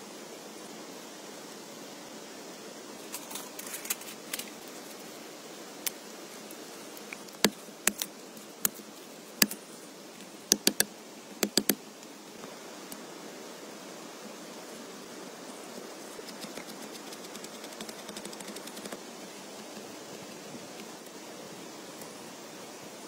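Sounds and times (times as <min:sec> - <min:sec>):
rain hiss: 0:00.0 - 0:23.0
sharp clicks or taps: 0:10.5 - 0:11.8.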